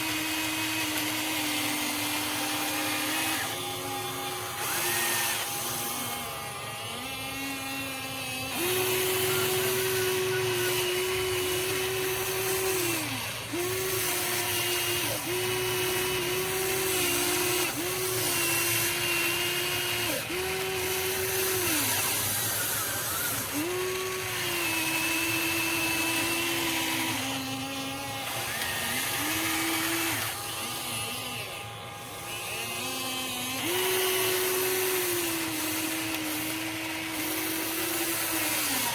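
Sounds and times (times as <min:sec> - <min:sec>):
electric motors whining: 0:00.0 - 0:38.9.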